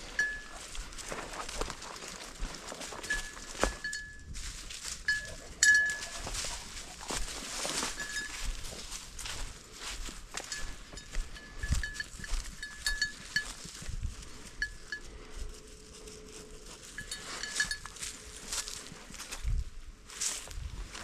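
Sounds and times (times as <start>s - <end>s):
footfalls through field cover: 0.0s - 5.2s, 5.9s - 12.7s
rustling through field cover: 0.0s - 21.0s
small bell jingling: 7.8s - 8.8s, 10.4s - 13.9s, 16.9s - 18.2s.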